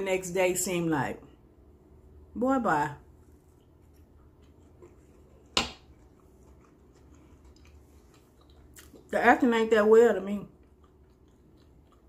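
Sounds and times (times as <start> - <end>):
person chewing food: 3.2 - 9.2, 10.5 - 12.0.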